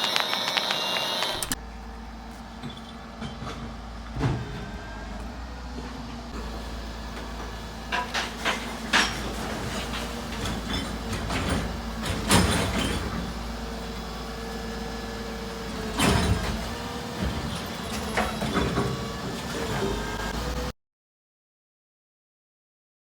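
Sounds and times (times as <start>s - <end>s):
garbage truck engine rumbling: 1.4s - 20.7s
metallic clanks and bangs: 7.2s - 13.4s.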